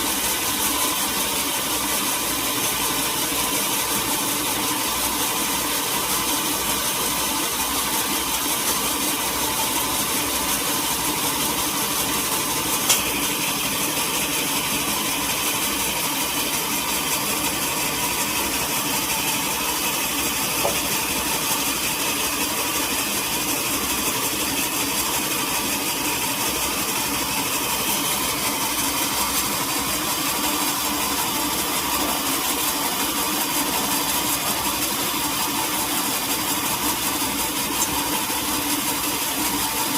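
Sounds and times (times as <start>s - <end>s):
sawmill machinery engine drone: 0.0s - 39.9s
sharp click: 12.8s - 13.2s.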